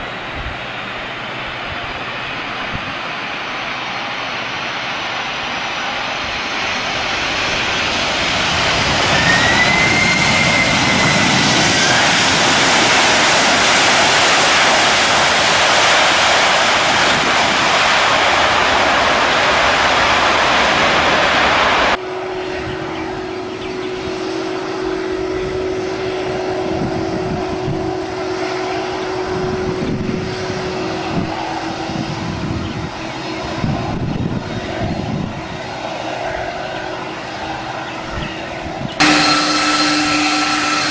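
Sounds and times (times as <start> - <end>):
aircraft engines running: 0.0 - 40.9
low hum: 0.0 - 40.9
whistle-like glide: 5.3 - 18.0, 21.9 - 40.9.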